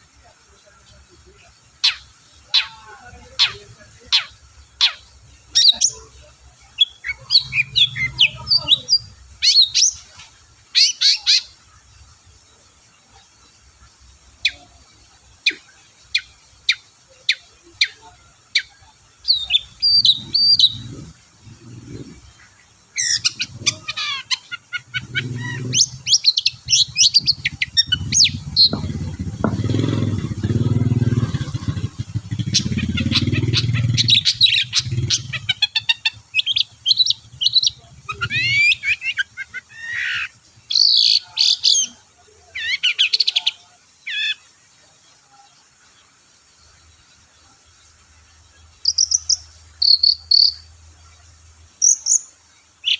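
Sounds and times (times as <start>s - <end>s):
bird singing: 0.0s - 52.9s
low rumble: 25.0s - 34.2s.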